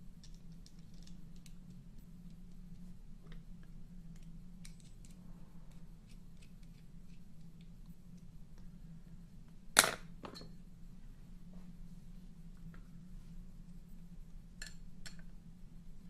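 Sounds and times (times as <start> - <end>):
steady low hum: 0.0 - 16.0
small parts clicking: 0.2 - 1.7.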